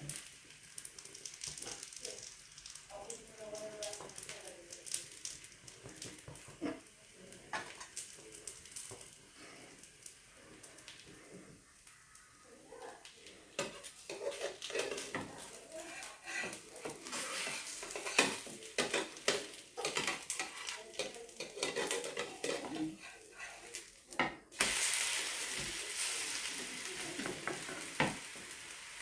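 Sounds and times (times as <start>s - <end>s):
batter sizzling in a pan: 0.0s - 29.0s
utensils clinking against pan: 13.5s - 24.9s.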